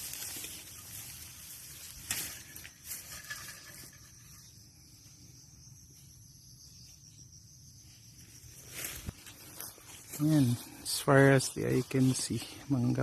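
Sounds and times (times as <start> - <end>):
footsteps crunching through grass: 0.0 - 3.4, 8.2 - 13.0
high-pitched insect buzz: 0.0 - 10.0.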